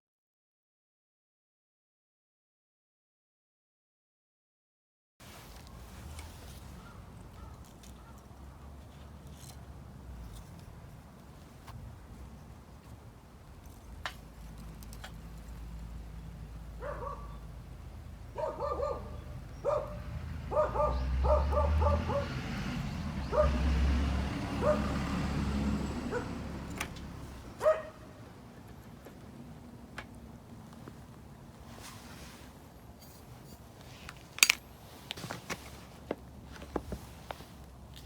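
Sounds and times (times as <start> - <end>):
dog yapping barks: 16.8 - 17.4, 18.3 - 22.4, 23.2 - 23.7, 24.5 - 25.1, 26.1 - 26.4, 27.5 - 28.1.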